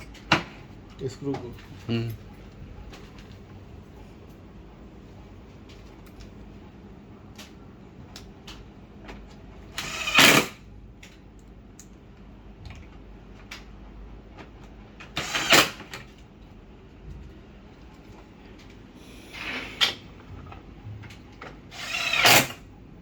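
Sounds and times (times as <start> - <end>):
power screwdriver driving screws: 9.8 - 10.6, 15.1 - 15.9, 21.7 - 22.6.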